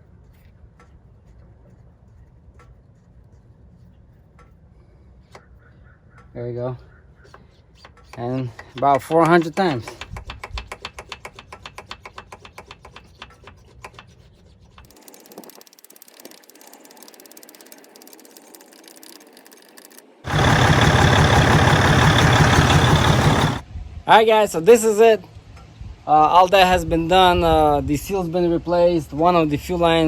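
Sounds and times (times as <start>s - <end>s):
diesel engine idling: 20.3s - 23.6s.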